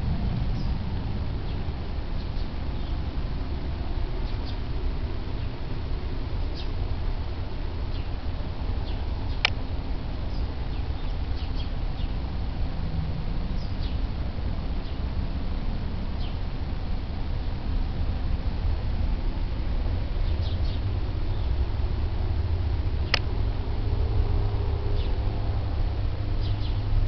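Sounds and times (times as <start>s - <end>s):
steady low rumble: 0.0s - 27.0s
small birds chirping: 0.5s - 0.8s, 1.4s - 3.1s, 4.2s - 4.7s, 6.4s - 6.8s, 7.8s - 12.3s, 13.5s - 14.1s, 14.8s - 15.1s, 16.2s - 16.4s, 20.2s - 21.6s, 25.0s - 25.2s, 26.4s - 26.9s.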